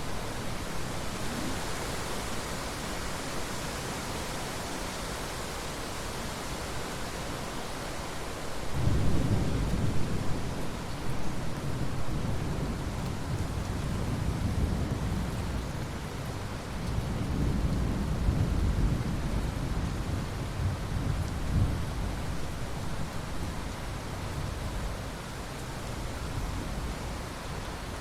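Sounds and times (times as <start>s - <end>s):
steady rain: 0.0s - 28.0s
rolling thunder: 8.7s - 16.1s.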